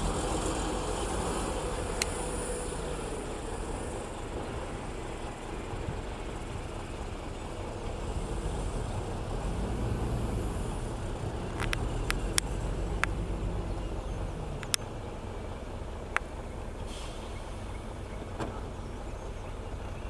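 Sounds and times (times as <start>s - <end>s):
heavy diesel machinery droning: 0.0s - 20.0s
sharp clicks: 11.5s - 13.2s, 14.6s - 14.9s.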